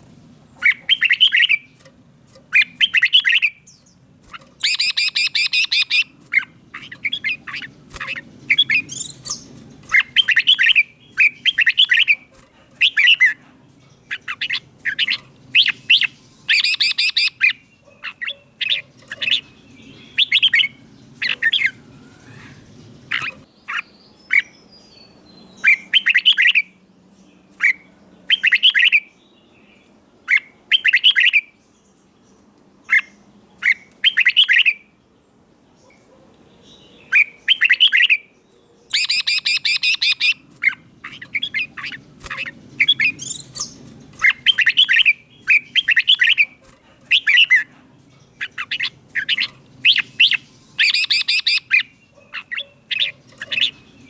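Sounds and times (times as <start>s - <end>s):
bird harsh scratchy chattering: 0.1s - 24.5s, 38.9s - 54.0s
bird whistled phrases: 4.6s - 6.1s, 14.4s - 17.5s, 38.9s - 40.4s, 48.4s - 53.2s.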